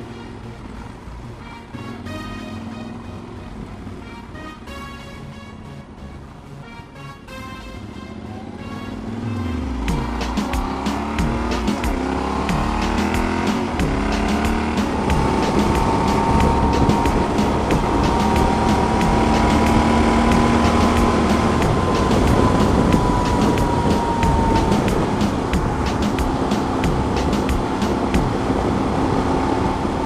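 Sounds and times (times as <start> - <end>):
road and wind noise: 0.0 - 30.0
motorcycle engine accelerating: 7.8 - 30.0.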